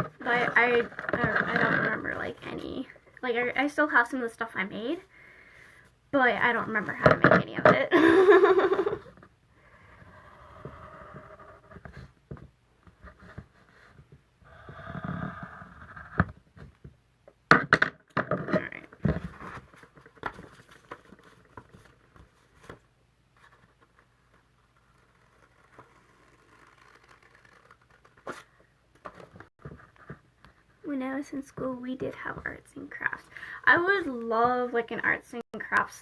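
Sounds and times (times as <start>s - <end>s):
paper scraping and rustling: 23.4s - 30.2s.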